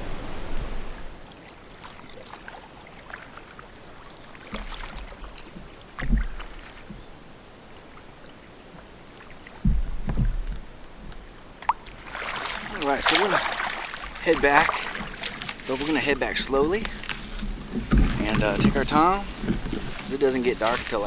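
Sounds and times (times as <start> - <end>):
water sloshing with clicks: 7.7 - 21.0
paddle knocking on hull: 16.6 - 21.0.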